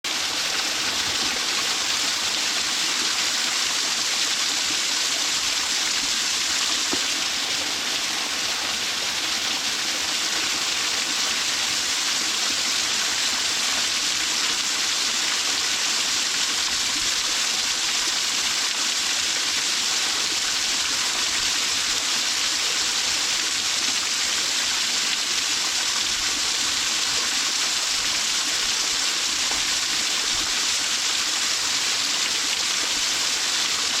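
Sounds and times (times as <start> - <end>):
waterfall rushing: 0.0 - 20.7.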